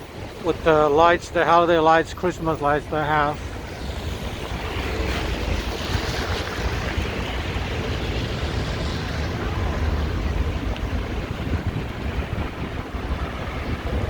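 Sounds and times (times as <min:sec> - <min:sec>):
wind buffeting microphone: 0:00.0 - 0:14.0
city traffic hiss: 0:00.1 - 0:14.0.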